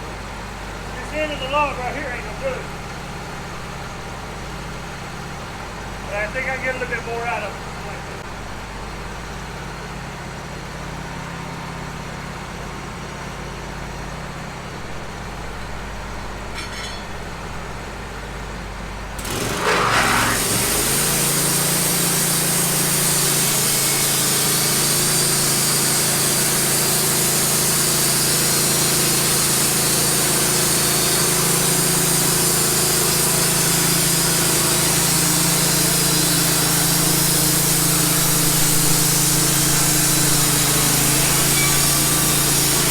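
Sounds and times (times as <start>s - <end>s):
sawmill engine: 0.0s - 15.5s, 16.3s - 42.9s
band saw cutting log: 19.2s - 42.9s.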